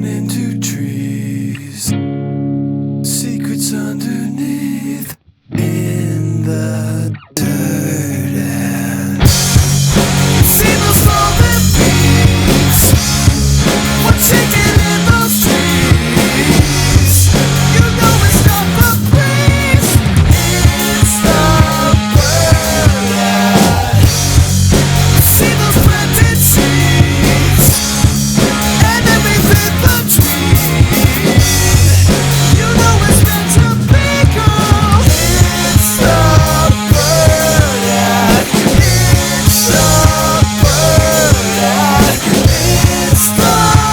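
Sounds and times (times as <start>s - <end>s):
rock band playing instrumental: 9.2s - 43.9s.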